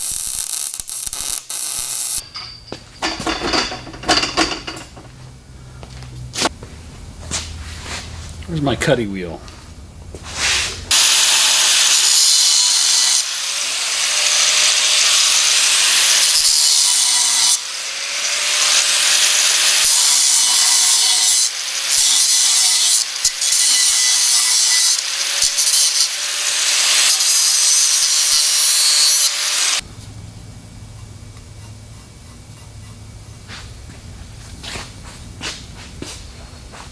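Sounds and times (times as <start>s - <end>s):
angle grinder cutting steel: 0.0s - 4.9s, 10.6s - 29.8s.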